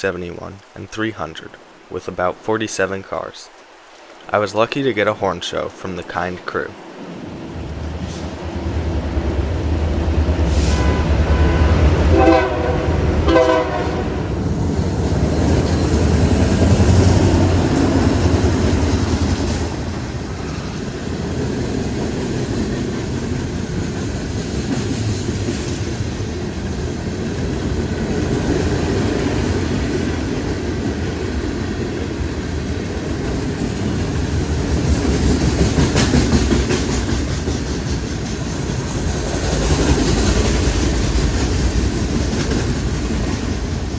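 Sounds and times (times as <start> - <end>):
freight train rumbling past: 5.5 - 43.9
locomotive horn blasts: 10.6 - 14.3
wheels clacking over rail joints: 14.4 - 43.9.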